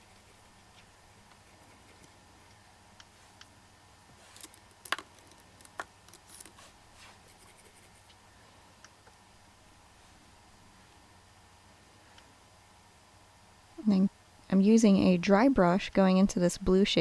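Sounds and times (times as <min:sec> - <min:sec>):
brushing rustles: 0:04.0 - 0:04.7, 0:06.2 - 0:08.2.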